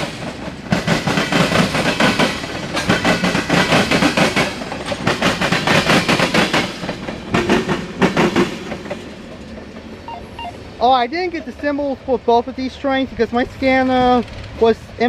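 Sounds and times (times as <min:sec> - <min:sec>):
train wheels clicking over rail joints: 0:00.0 - 0:10.0, 0:13.8 - 0:14.6.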